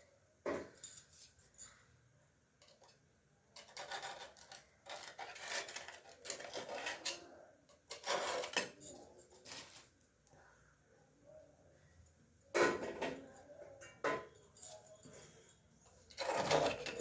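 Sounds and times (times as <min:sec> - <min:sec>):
utensil scraping cookware: 0:03.6 - 0:08.8, 0:16.1 - 0:17.0.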